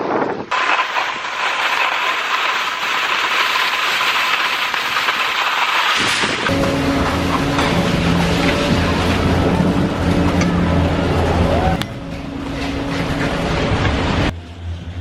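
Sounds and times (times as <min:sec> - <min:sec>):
skis sliding over snow: 0:00.5 - 0:09.8.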